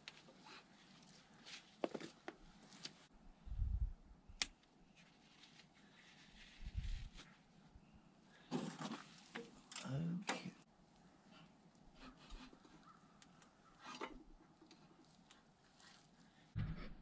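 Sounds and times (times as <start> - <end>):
low thumps: 16.6 - 17.0.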